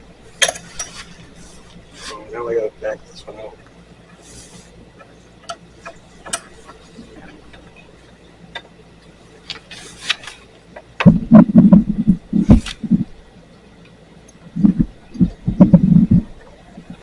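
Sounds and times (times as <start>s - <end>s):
low rumbling knocks: 11.0s - 13.2s, 14.6s - 17.0s.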